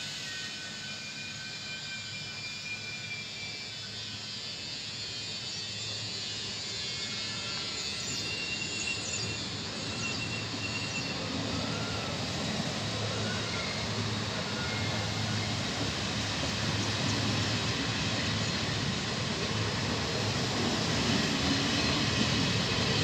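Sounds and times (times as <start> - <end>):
train rolling rumble: 5.0 - 23.0.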